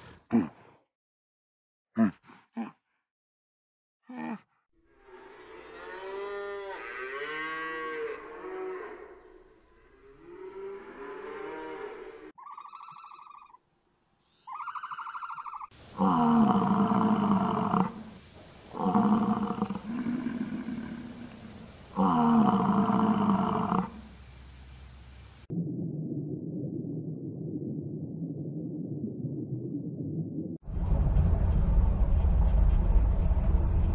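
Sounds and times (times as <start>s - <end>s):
cattle mooing: 5.0s - 12.3s, 18.7s - 21.4s, 22.0s - 24.0s
bison bellowing: 18.7s - 24.0s.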